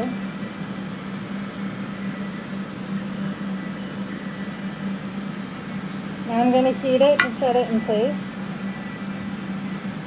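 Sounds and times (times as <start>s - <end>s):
fans running: 0.0s - 10.0s.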